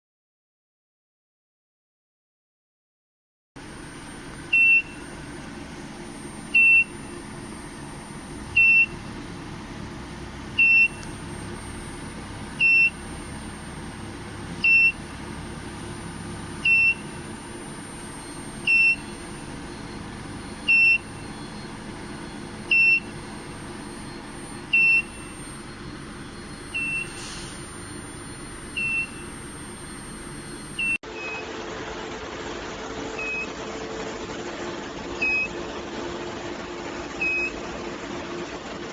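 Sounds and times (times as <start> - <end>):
short electronic beeps: 3.8 - 9.2, 10.6 - 31.5.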